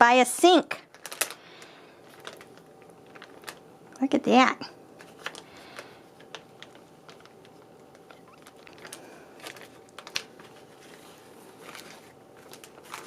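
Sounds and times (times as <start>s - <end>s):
plastic bag crinkling: 0.7s - 4.2s, 4.9s - 13.0s.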